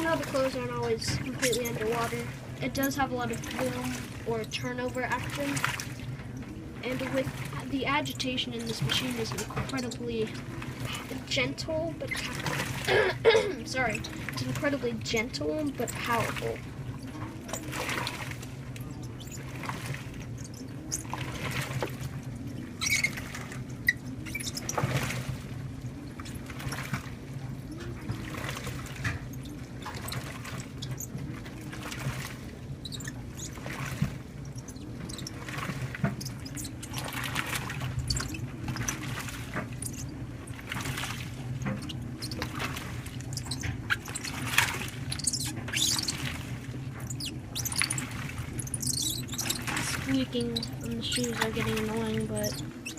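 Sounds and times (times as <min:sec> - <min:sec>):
washer motor hum: 0:00.0 - 0:52.9
water sloshing in washer: 0:00.0 - 0:52.9
shoes squeaking against drum: 0:22.8 - 0:23.3.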